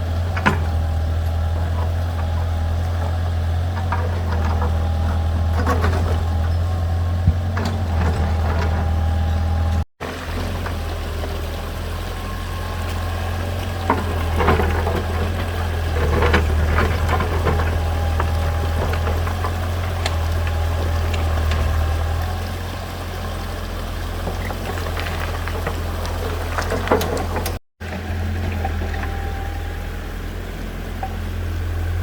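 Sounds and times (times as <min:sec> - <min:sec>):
tractor engine running: 0:00.0 - 0:32.0
stones clacking and knocking: 0:24.3 - 0:27.6.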